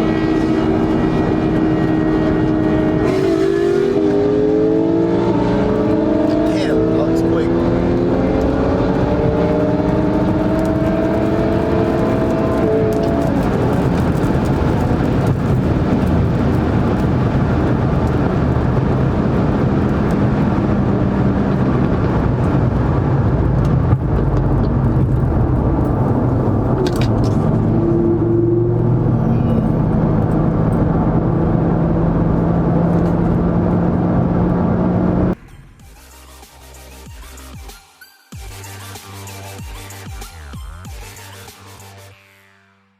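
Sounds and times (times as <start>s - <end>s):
car engine running: 0.0s - 35.6s
road and wind noise: 0.0s - 35.8s.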